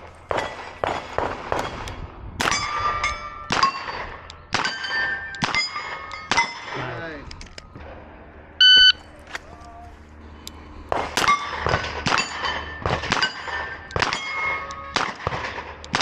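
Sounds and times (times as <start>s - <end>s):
bullets ringing on steel plate: 2.5s - 6.8s, 11.2s - 15.1s
shot timer beep: 8.6s - 9.0s.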